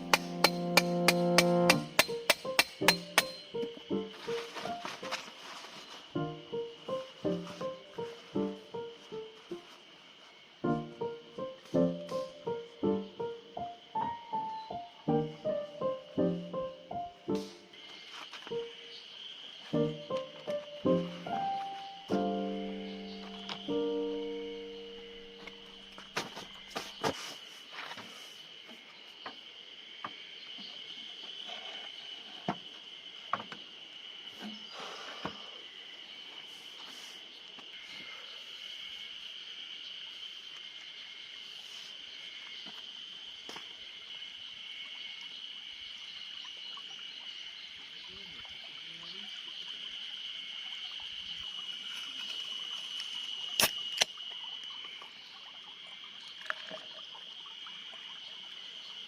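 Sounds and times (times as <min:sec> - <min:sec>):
sharp clicks and knocks: 0:00.0 - 0:03.6
insects droning: 0:00.0 - 0:59.0.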